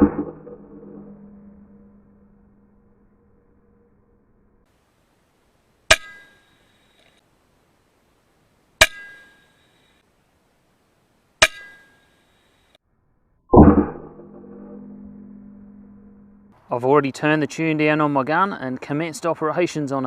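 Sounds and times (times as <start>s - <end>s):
loud low droning tone: 0.0s - 4.6s, 13.5s - 16.5s.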